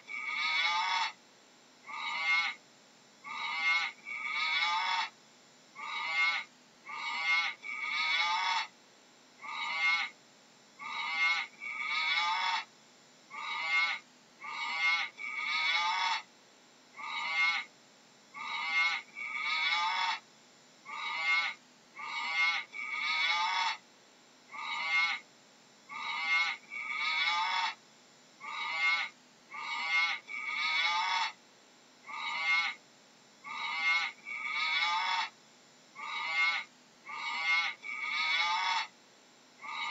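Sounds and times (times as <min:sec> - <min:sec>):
high-pitched animal calls: 0:00.0 - 0:01.2, 0:01.8 - 0:02.6, 0:03.2 - 0:05.2, 0:05.8 - 0:08.8, 0:09.4 - 0:10.2, 0:10.8 - 0:12.7, 0:13.3 - 0:16.3, 0:17.0 - 0:17.7, 0:18.4 - 0:20.2, 0:20.9 - 0:23.8, 0:24.5 - 0:25.3, 0:25.9 - 0:27.8, 0:28.4 - 0:31.4, 0:32.0 - 0:32.8, 0:33.4 - 0:35.4, 0:36.0 - 0:39.0, 0:39.6 - 0:39.9.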